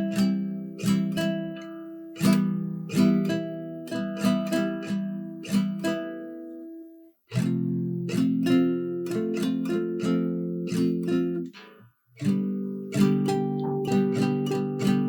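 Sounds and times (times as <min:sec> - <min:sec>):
acoustic guitar strumming chords: 0:07.3 - 0:15.0.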